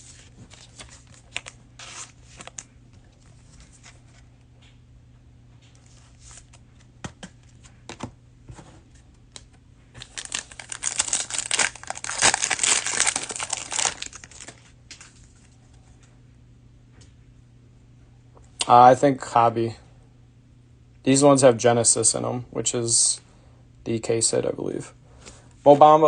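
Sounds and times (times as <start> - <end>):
cellophane wrapper crinkling and tearing: 0.5 - 2.7, 10.0 - 15.3.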